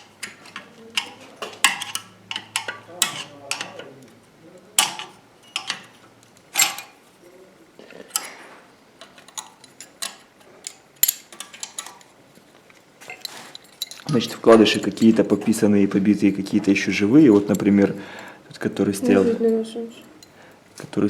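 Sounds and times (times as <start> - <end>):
metal engine parts clinking: 0.0 - 7.1, 9.0 - 12.2, 12.8 - 15.5, 19.9 - 20.4.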